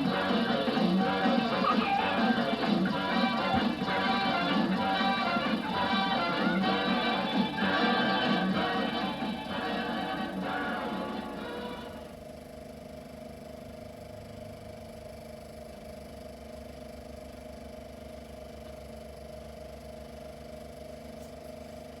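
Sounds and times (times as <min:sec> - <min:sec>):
closing music: 0:00.0 - 0:12.1
film projector running: 0:00.0 - 0:22.0.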